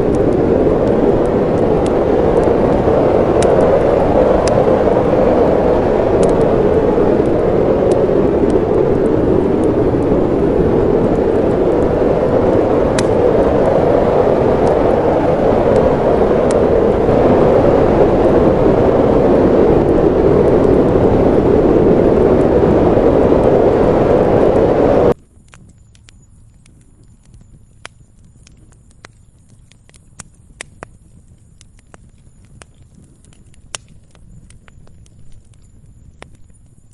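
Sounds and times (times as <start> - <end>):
wind blowing: 0.0 - 25.2
wood fire crackling: 0.0 - 36.9.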